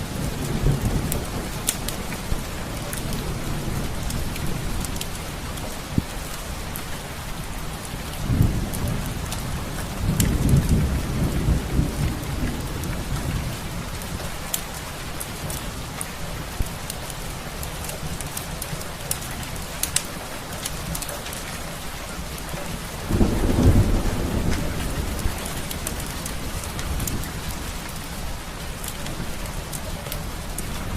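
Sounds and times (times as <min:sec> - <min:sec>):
steady rain: 0:00.0 - 0:30.9
thunder rolling: 0:08.3 - 0:14.0, 0:23.1 - 0:28.4.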